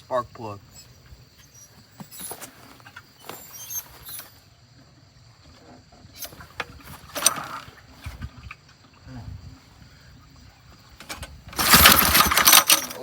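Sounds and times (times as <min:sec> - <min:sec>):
engine pull-start scraping: 0:00.9 - 0:04.5, 0:05.6 - 0:08.9, 0:10.8 - 0:13.0
clicks and rattles: 0:06.2 - 0:08.8, 0:10.9 - 0:13.0.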